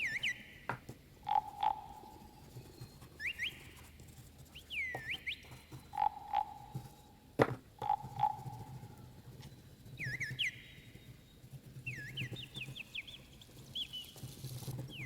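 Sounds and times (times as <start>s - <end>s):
rising whistled chirps: 0.0s - 0.6s, 1.2s - 2.6s, 3.2s - 3.8s, 4.5s - 7.0s, 9.9s - 11.1s
frog-like double croaks: 1.2s - 2.2s, 6.0s - 6.7s, 7.8s - 8.6s.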